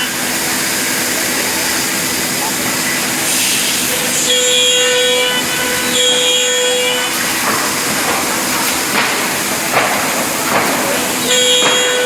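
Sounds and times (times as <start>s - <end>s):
router spindle whine: 0.0s - 8.4s, 11.0s - 12.0s
machine noise: 0.0s - 12.0s.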